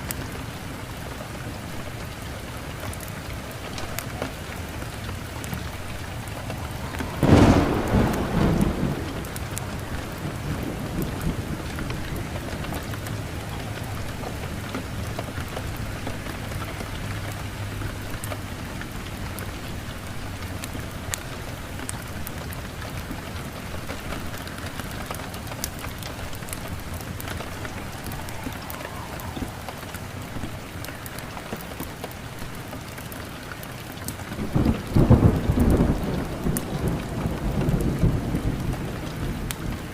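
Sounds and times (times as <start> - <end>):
heavy rain falling: 0.0 - 39.9
thunderclap rumbling: 3.9 - 17.1, 22.1 - 32.3, 34.3 - 39.9.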